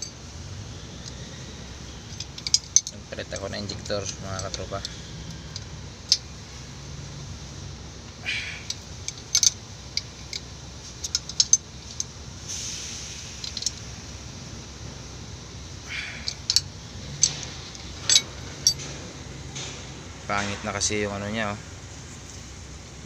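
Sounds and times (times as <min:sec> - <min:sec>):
low steady hum: 0:00.0 - 0:23.0
metallic clicks and clinks: 0:02.1 - 0:06.3, 0:08.7 - 0:12.2, 0:13.4 - 0:13.9, 0:16.2 - 0:19.0.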